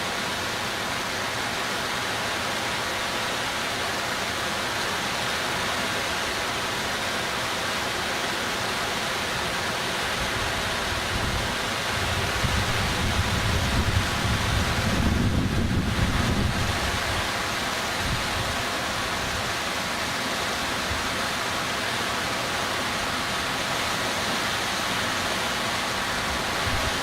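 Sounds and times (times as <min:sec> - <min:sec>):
rushing floodwater: 0:00.0 - 0:27.0
wind buffeting microphone: 0:11.0 - 0:17.3.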